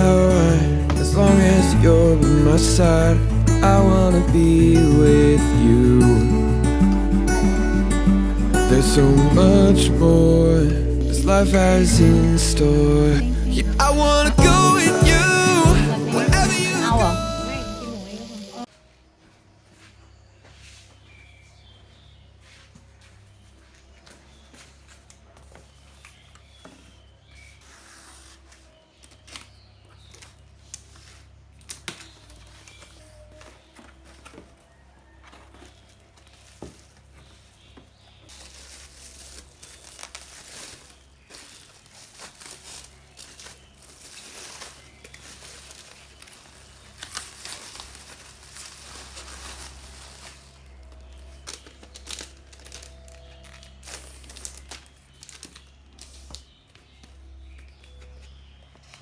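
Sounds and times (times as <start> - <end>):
packaging crinkling and tearing: 27.6 - 37.6, 38.2 - 58.0.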